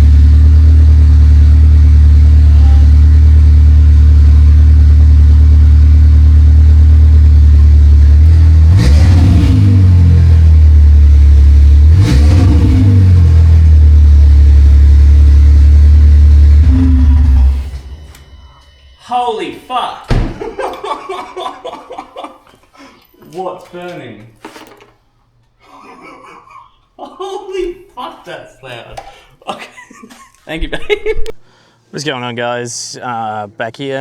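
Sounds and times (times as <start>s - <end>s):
car engine idling and revving: 0.0s - 18.6s.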